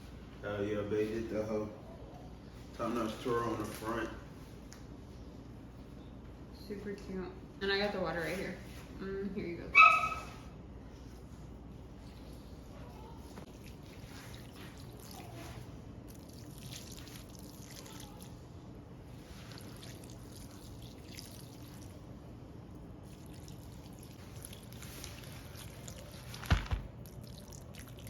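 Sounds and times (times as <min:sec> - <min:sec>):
water pouring into bowls: 0:13.5 - 0:18.4, 0:19.2 - 0:22.1, 0:23.0 - 0:28.0.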